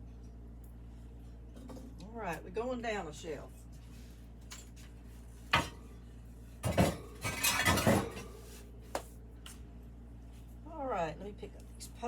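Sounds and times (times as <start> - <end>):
ceramic pieces clinking and scraping: 6.7 - 8.2.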